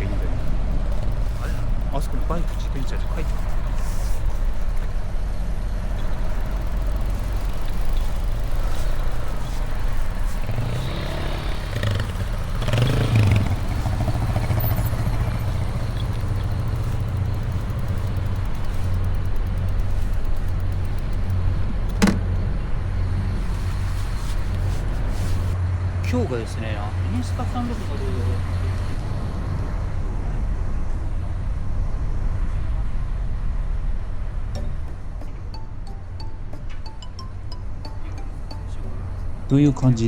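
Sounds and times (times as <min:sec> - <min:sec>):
vehicle passing: 0:00.0 - 0:29.8
low rumble of engines: 0:00.0 - 0:40.0.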